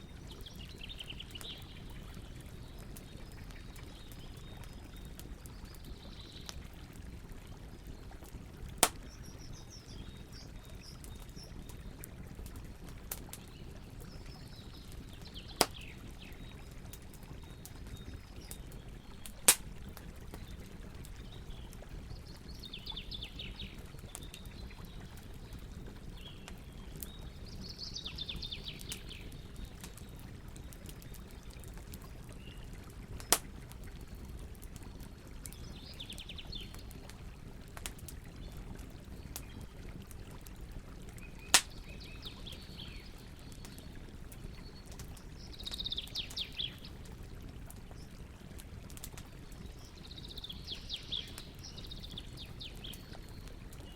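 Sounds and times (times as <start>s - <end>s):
songbirds singing trills: 0.0s - 6.6s, 8.9s - 12.2s, 13.2s - 19.5s, 20.3s - 33.4s, 34.0s - 37.1s, 41.2s - 47.0s, 49.4s - 53.9s
campfire crackling and popping: 0.1s - 53.9s.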